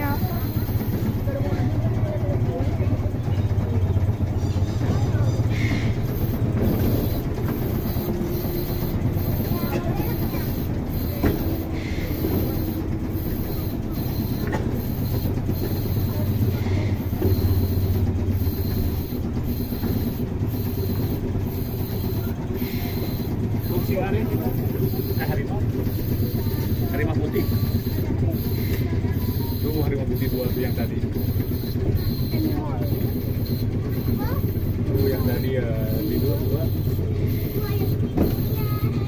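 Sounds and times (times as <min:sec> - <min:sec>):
train engine and wheels rumbling: 0:00.0 - 0:39.0.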